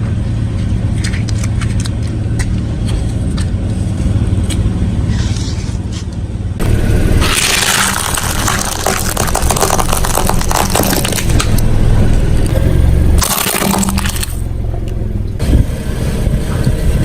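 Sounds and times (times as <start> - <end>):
car engine running: 0.0 - 17.0
tyres crushing crunchy objects: 7.2 - 11.6, 13.2 - 14.5.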